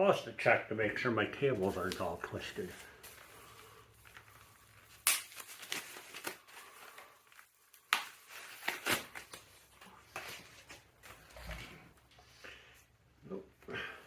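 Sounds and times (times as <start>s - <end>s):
light crinkling: 1.4s - 12.2s.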